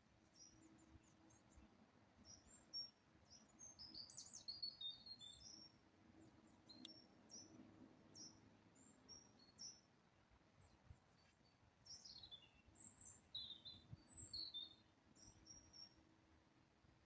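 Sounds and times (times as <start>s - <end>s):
birds chirping and whistling: 13.0s - 14.7s.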